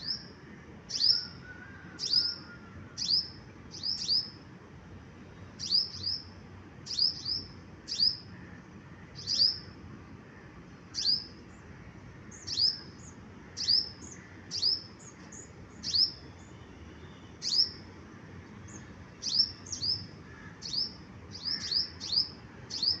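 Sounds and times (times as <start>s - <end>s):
bird chirping: 0.0s - 0.3s, 0.9s - 1.4s, 2.0s - 4.4s, 5.6s - 8.3s, 9.2s - 9.7s, 10.9s - 11.6s, 12.3s - 17.8s, 18.6s - 23.0s.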